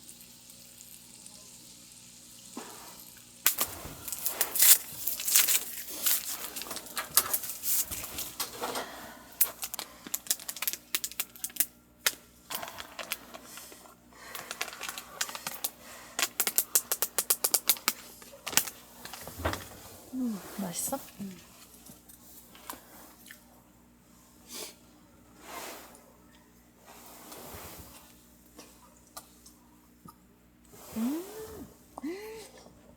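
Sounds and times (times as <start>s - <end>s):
small hard objects clicking together: 3.4s - 8.4s, 9.4s - 18.8s.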